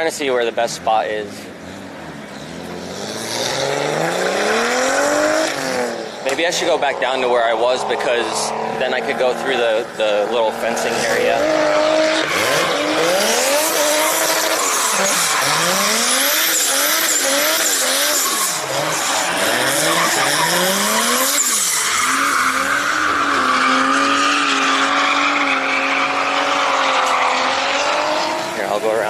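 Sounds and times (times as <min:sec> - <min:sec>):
car engines revving hard: 0:00.0 - 0:29.0
tyres squealing: 0:09.2 - 0:28.7.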